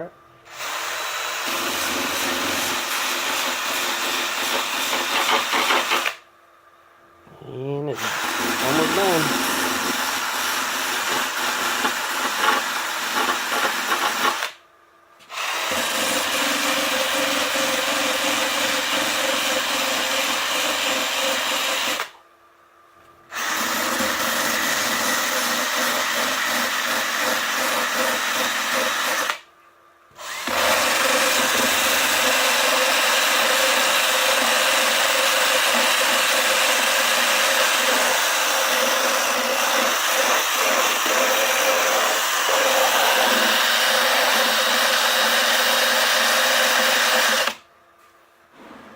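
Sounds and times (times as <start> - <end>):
electric drill grinding foam: 0.0 - 6.2, 8.0 - 14.6, 15.3 - 22.2, 23.3 - 29.4, 30.2 - 47.6.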